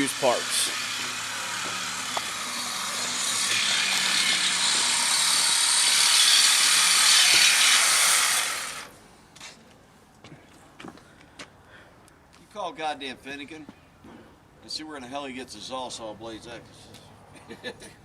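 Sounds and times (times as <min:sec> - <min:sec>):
reciprocating saw cutting metal: 0:00.0 - 0:08.9.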